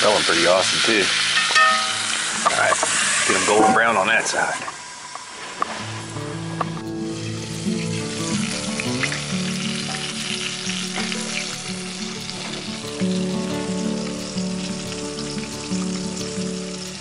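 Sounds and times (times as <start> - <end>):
meat sizzling in hot oil: 0.0 - 17.0.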